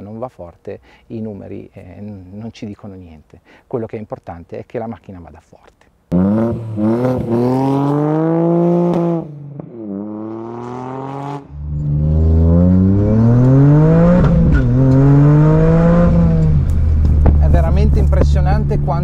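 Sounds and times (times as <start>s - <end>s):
car engine accelerating hard: 6.1s - 19.0s.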